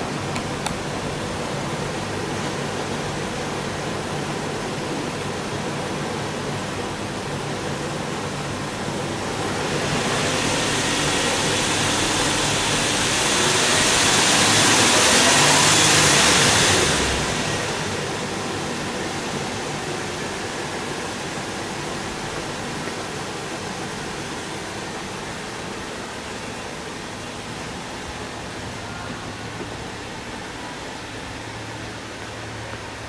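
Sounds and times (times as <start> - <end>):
car engine revving: 8.5 - 33.0.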